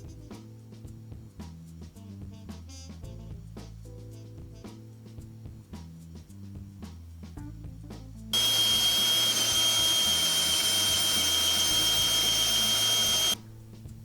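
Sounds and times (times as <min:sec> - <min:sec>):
background music: 0:00.0 - 0:08.3
power tool whining: 0:08.4 - 0:13.4.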